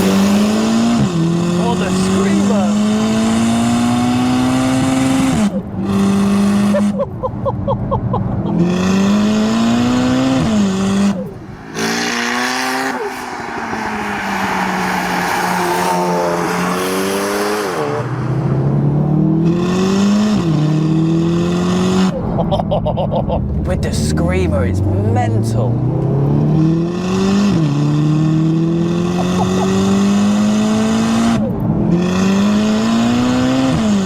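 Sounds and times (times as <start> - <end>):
car engine revving through gears: 0.0 - 7.0, 8.3 - 22.3, 23.5 - 34.0
exhaust crackles: 29.1 - 30.3.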